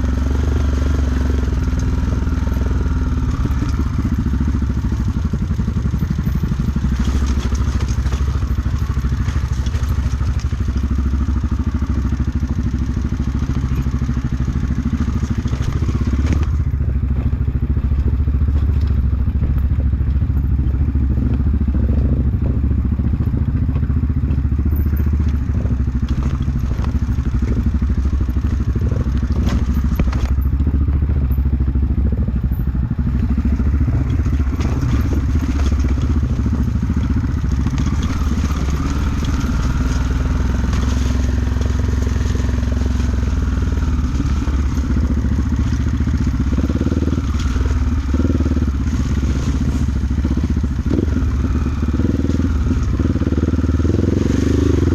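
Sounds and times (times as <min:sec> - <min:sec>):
motorcycle engine running: 0:00.0 - 0:54.9
clattering and thumps: 0:15.2 - 0:31.0.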